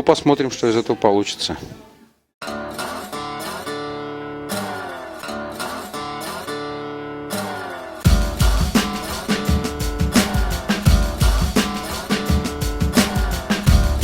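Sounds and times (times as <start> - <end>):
acoustic guitar strumming: 2.4 - 14.0
drums: 8.0 - 14.0
bass: 8.1 - 8.8, 10.8 - 11.6, 12.4 - 14.0.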